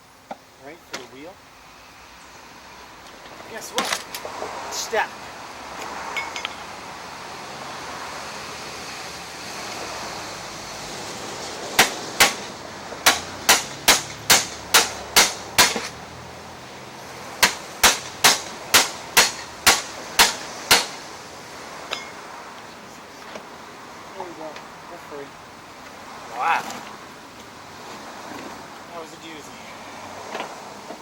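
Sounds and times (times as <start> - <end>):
hammer blows on metal: 11.8 - 15.9, 17.4 - 21.0.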